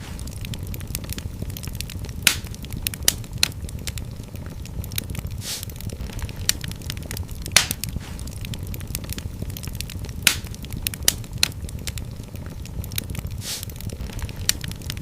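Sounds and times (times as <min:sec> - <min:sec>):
wood fire crackling and popping: 0:00.0 - 0:15.0
hiss: 0:05.4 - 0:05.8, 0:07.6 - 0:08.3, 0:13.4 - 0:13.8.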